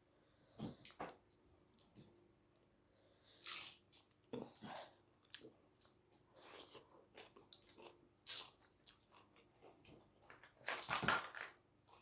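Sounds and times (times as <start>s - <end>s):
person chewing: 3.4s - 10.0s.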